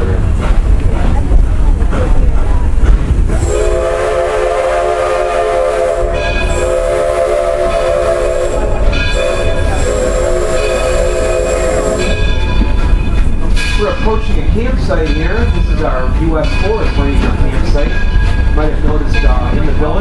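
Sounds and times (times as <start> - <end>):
moving train rumble: 0.0 - 20.0
steam locomotive whistle blasts: 3.4 - 12.3.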